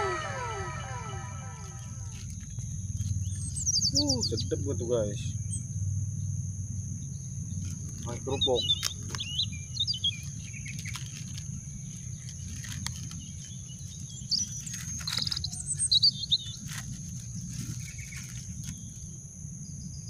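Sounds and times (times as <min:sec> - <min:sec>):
constant high drone: 0:00.0 - 0:03.3
small birds chirping: 0:00.0 - 0:20.0
plastic bag crinkling: 0:10.1 - 0:15.5, 0:16.4 - 0:19.0.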